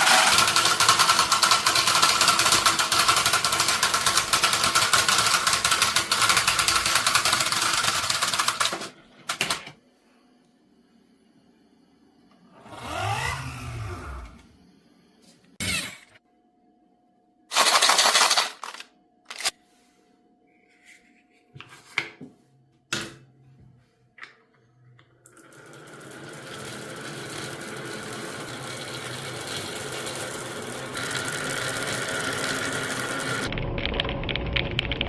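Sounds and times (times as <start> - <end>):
marbles rolling rattle: 17.5 - 19.5.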